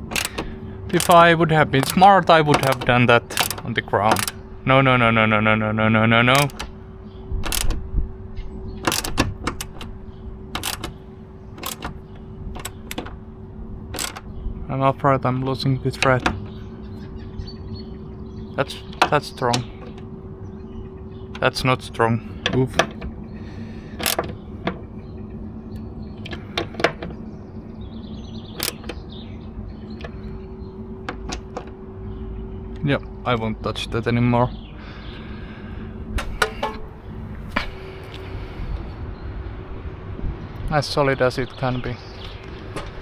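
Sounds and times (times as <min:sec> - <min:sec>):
steady low hum: 0:00.0 - 0:43.0
sharp clicks of hand tools: 0:00.1 - 0:04.4, 0:06.3 - 0:06.7, 0:07.5 - 0:07.8, 0:10.6 - 0:11.0, 0:11.6 - 0:11.9, 0:14.0 - 0:14.2, 0:24.0 - 0:24.3, 0:36.2 - 0:36.9
higher steady tone: 0:35.2 - 0:39.1.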